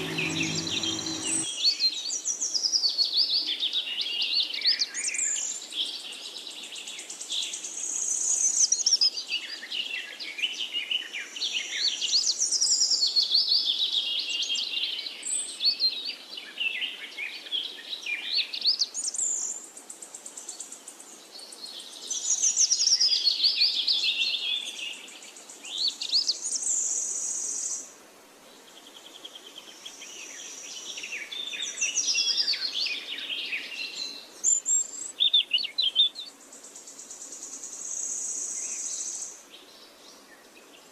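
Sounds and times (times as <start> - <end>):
small birds chirping: 0.0 - 1.5.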